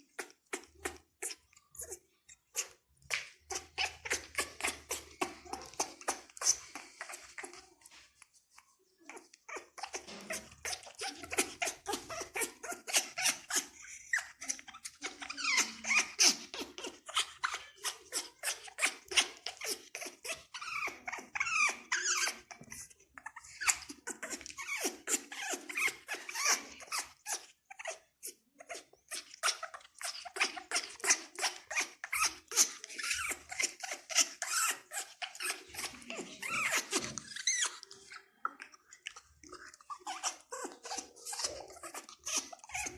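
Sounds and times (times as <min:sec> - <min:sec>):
parrot chirping and squeaking: 0:00.0 - 0:08.0, 0:08.9 - 0:42.9.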